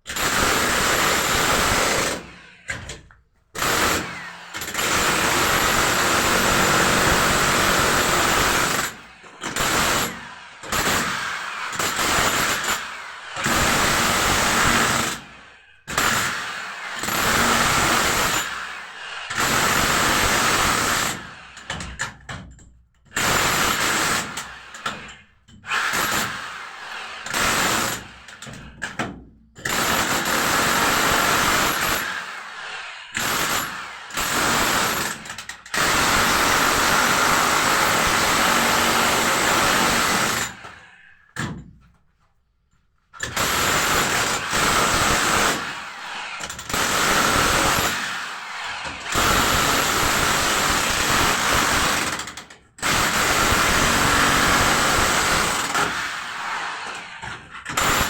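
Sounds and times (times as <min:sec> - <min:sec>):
handheld power tool running: 0:03.6 - 0:21.8, 0:23.2 - 0:28.5, 0:29.7 - 0:41.1, 0:43.3 - 0:58.0.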